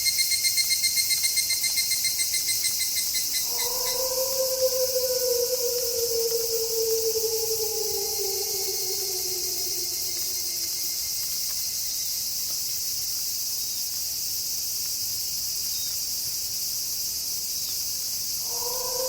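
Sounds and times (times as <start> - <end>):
night insects chirping: 0.0 - 19.0
wolf howl: 3.4 - 11.0, 18.4 - 19.0.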